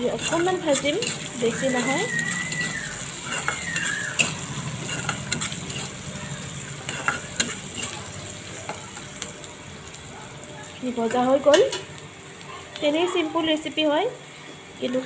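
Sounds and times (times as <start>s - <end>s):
spatula scraping a pan: 0.0s - 9.0s
onions sizzling in hot oil: 0.0s - 15.0s.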